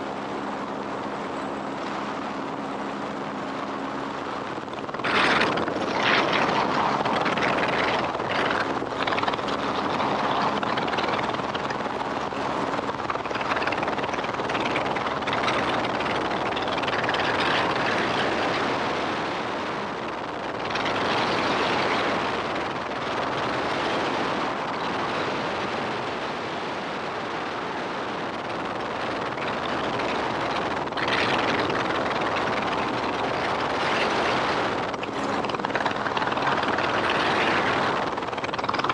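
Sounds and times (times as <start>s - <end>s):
helicopter rotor and engine noise: 0.0s - 38.9s.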